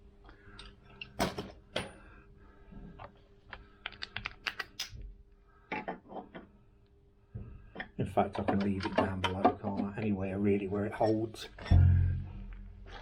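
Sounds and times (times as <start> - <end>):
faint steady hum: 0.0 - 13.0
clicks of small metal parts: 3.5 - 5.0.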